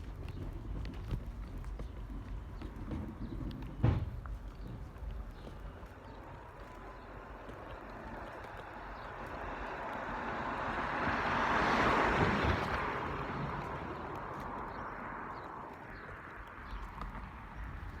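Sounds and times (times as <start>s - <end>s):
vehicle passing by: 6.2s - 18.0s.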